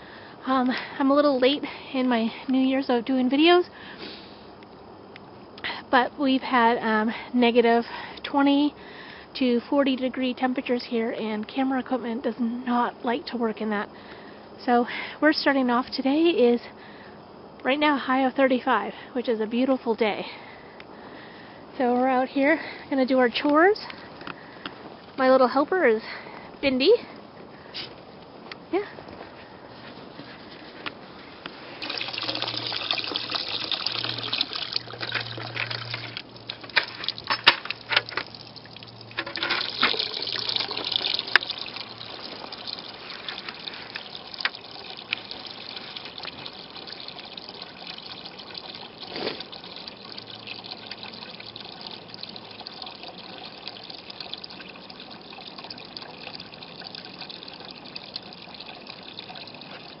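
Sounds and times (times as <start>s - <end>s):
water running into container: 31.4s - 60.0s.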